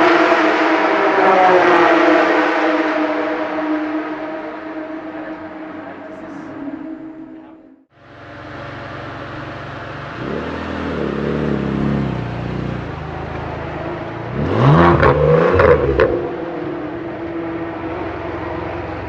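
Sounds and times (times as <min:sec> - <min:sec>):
car engine idling and revving: 0:00.0 - 0:19.0
exhaust cracks: 0:08.2 - 0:19.0.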